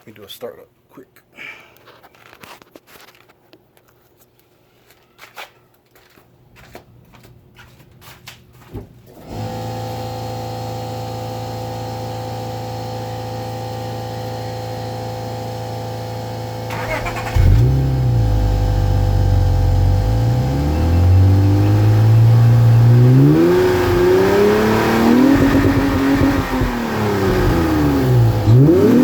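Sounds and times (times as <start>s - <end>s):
car engine starting and idling: 9.3s - 29.0s.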